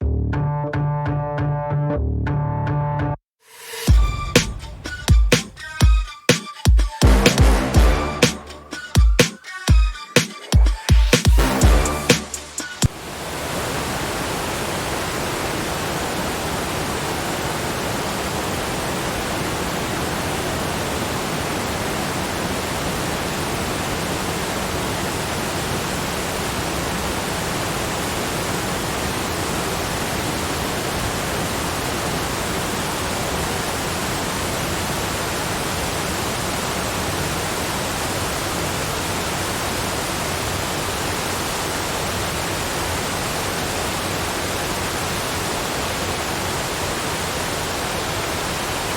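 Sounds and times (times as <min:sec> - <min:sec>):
waterfall rushing: 0:10.9 - 0:48.9.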